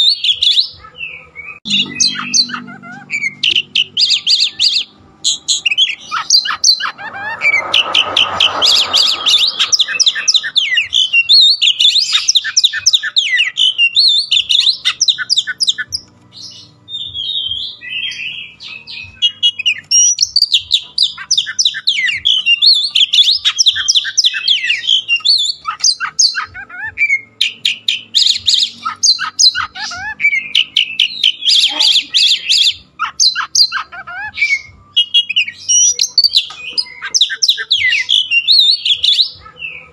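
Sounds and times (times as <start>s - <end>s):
songbird chirping and trilling: 0.0s - 39.9s
short burst of noise: 6.4s - 11.0s.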